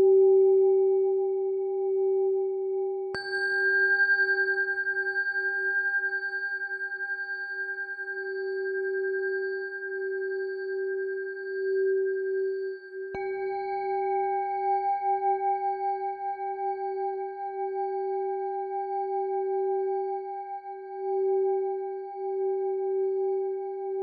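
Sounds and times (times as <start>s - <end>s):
singing bowl ringing: 3.1s - 18.2s.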